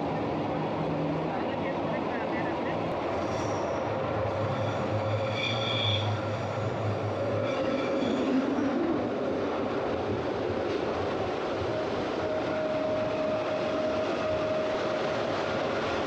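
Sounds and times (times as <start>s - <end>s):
train wheels rumbling on rails: 0.0s - 16.0s
high squeals: 3.2s - 8.7s.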